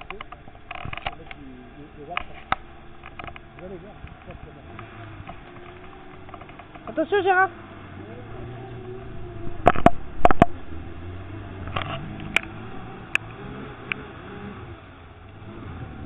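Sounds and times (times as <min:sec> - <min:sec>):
car engine running: 0:00.0 - 0:16.0
car wading through water: 0:00.0 - 0:16.0
sharp knocks: 0:09.6 - 0:10.6.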